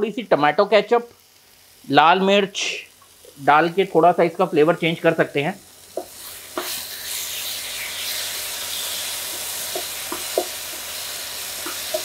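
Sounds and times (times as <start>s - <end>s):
vegetables sizzling in a frying pan: 0.0s - 12.0s
spatula tapping pan: 9.2s - 10.9s, 11.6s - 12.0s.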